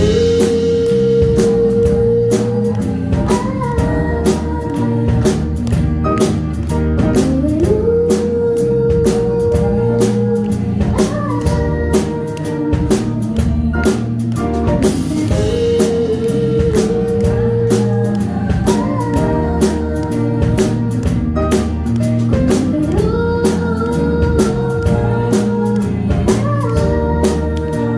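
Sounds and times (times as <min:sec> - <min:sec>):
guitar: 0:00.0 - 0:27.9
steady drum beat: 0:00.0 - 0:27.9.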